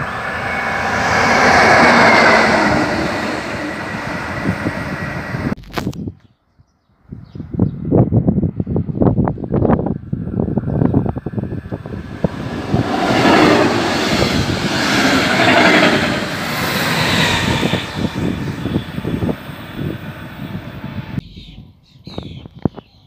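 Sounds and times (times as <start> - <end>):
train passing at speed: 0.0 - 5.6, 10.5 - 21.2.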